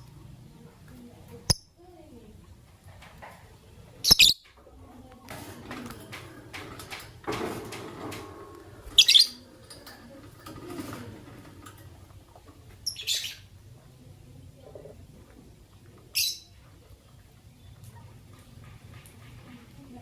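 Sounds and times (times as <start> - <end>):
lovebirds chirping: 3.8 - 4.5, 8.9 - 9.5, 12.8 - 13.6, 15.8 - 18.5.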